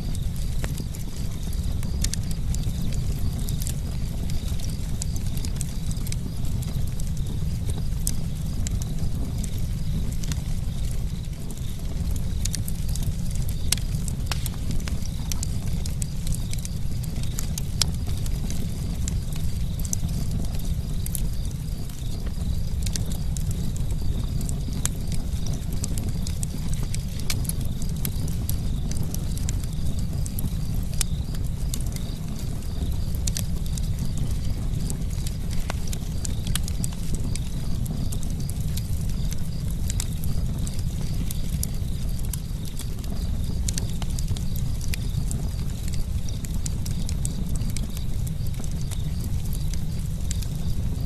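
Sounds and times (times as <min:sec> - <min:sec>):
campfire low rumble: 0:00.0 - 0:51.0
wood crackling and popping: 0:00.0 - 0:51.0.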